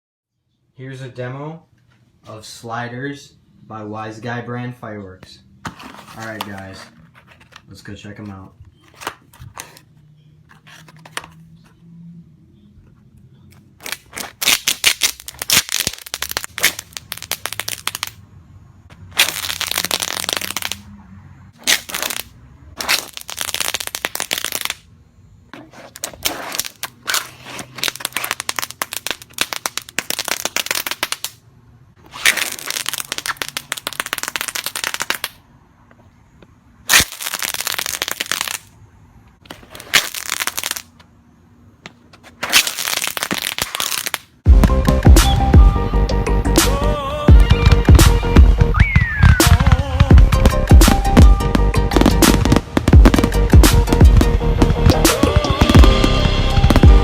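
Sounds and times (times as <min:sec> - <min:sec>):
fireworks crackling pops: 0:13.8 - 0:18.2, 0:18.9 - 0:20.8, 0:21.6 - 0:24.8, 0:25.8 - 0:31.4, 0:32.0 - 0:35.4, 0:36.9 - 0:38.7, 0:39.4 - 0:41.1, 0:42.3 - 0:45.4, 0:47.6 - 0:57.0.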